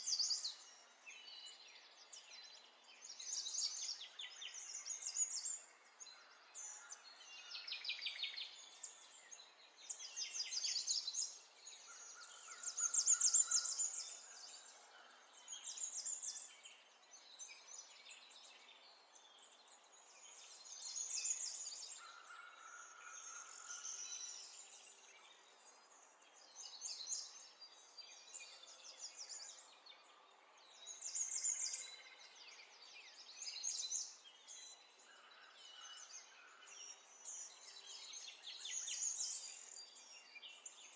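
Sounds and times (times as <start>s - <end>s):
small birds chirping and trilling: 0.0s - 40.9s.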